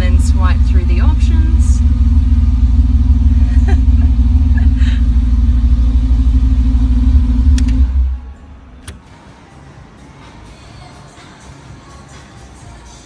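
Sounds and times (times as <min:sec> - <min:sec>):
car engine deep rumble: 0:00.0 - 0:09.0.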